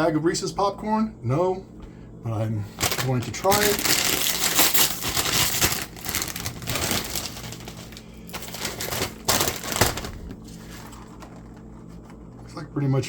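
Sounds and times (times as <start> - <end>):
snack bag crinkling: 2.8 - 12.3.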